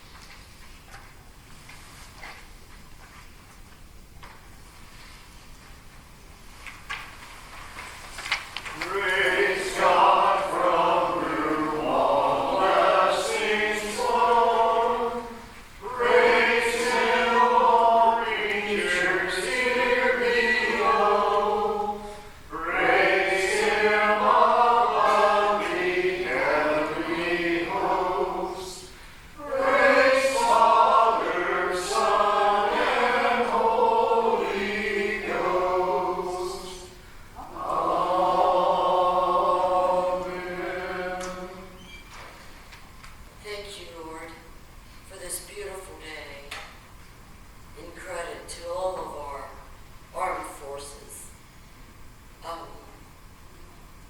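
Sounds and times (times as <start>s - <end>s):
congregation singing: 8.6s - 42.4s.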